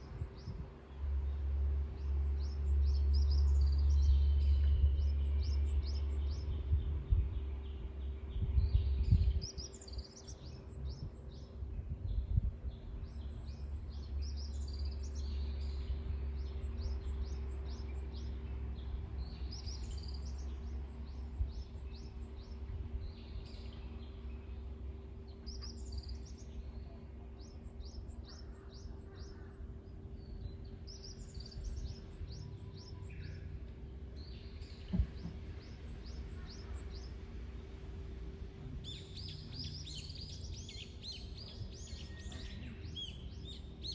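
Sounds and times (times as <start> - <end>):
faint hum: 0.0 - 43.9
low rumble: 0.0 - 43.9
birds chirping and trilling: 2.0 - 43.9.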